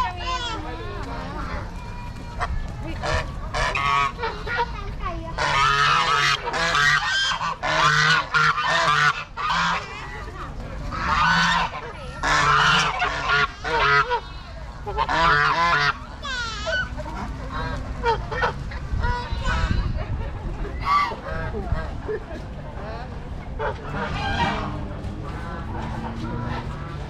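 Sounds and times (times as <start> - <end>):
farm animals calling: 5.4 - 20.0, 20.7 - 22.0, 23.6 - 27.0.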